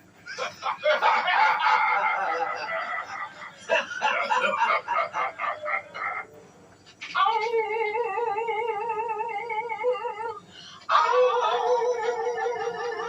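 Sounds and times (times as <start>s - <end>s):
cartoon wolves howling: 7.2s - 13.0s.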